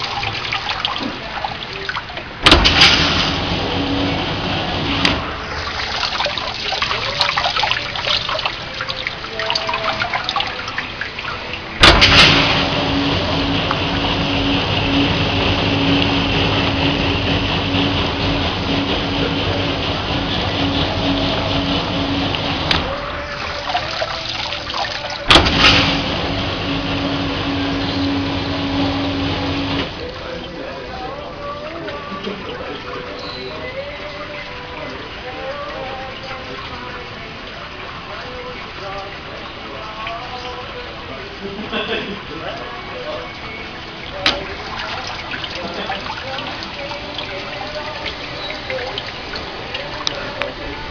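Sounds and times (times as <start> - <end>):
dishwasher running: 0.0 - 50.9
loud rush of water: 0.0 - 50.9
low steady hum: 0.0 - 50.9
water splashing and dripping: 0.0 - 50.9
sharp clunks: 2.4 - 3.4, 11.8 - 12.9, 25.3 - 26.2.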